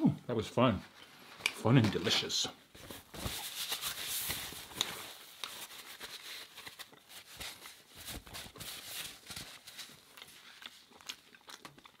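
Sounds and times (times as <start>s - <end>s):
chewing: 10.0s - 12.0s.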